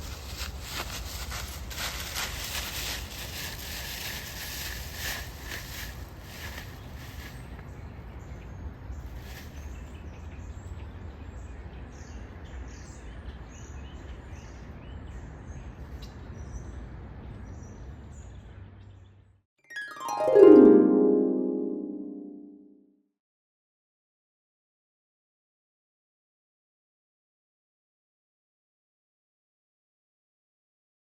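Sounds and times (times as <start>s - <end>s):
music sting falling in pitch: 19.7s - 22.9s.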